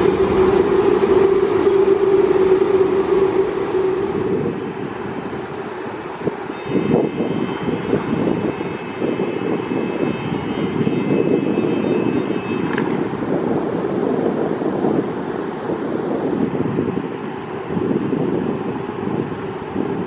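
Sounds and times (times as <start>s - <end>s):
short falling squeal: 0.0s - 4.2s
train rumbling: 0.0s - 8.6s.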